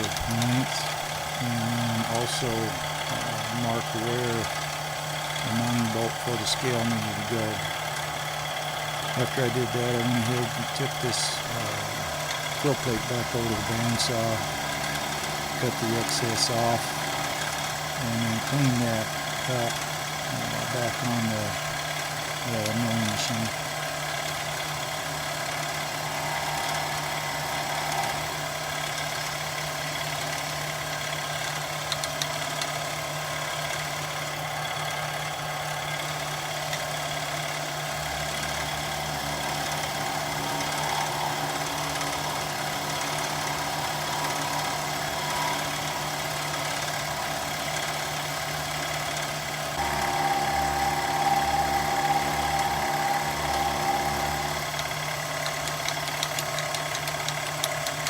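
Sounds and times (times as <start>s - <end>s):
high steady machine whine: 0.0s - 58.0s
milling machine motor hum: 0.0s - 58.0s.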